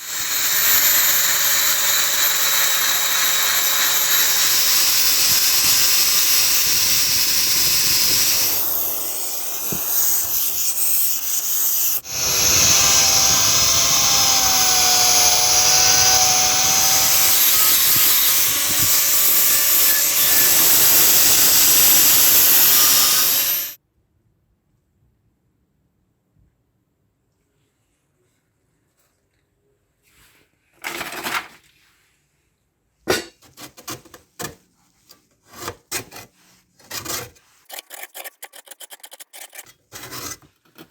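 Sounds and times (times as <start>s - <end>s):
power tool abrading metal: 0.0s - 23.8s, 37.7s - 39.7s.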